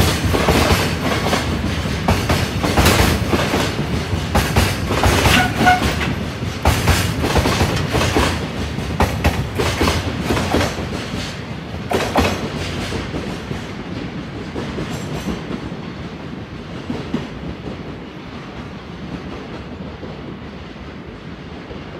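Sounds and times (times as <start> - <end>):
train wheels rumbling: 0.0 - 21.9
wheel clacks over rail joints: 0.4 - 13.5.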